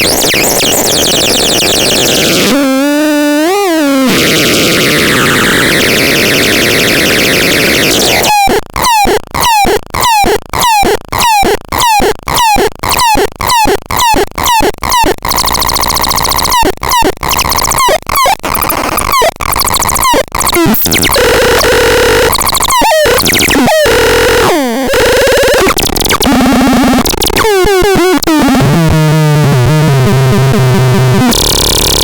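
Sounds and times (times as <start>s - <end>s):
wobbling synthesizer tone: 0.0s - 32.0s
synthesizer noise sweeps: 4.0s - 8.3s.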